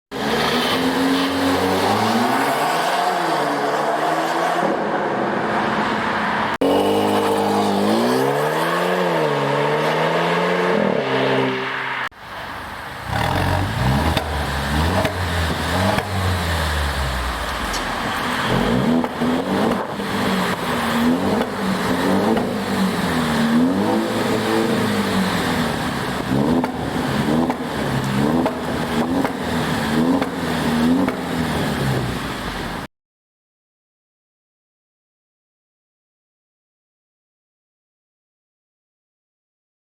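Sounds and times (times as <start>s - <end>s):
car engine revving: 13.0s - 32.9s.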